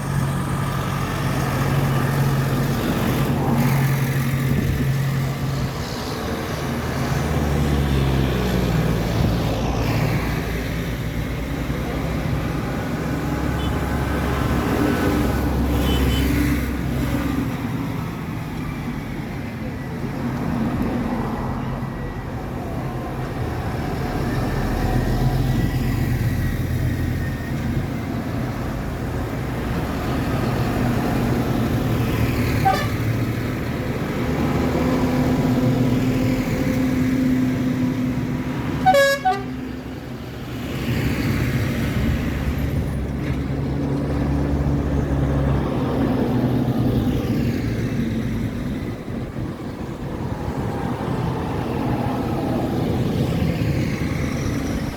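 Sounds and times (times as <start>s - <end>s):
tractor engines running: 0.0s - 15.7s, 16.4s - 54.9s
horn toot: 32.6s - 33.1s, 38.8s - 39.6s.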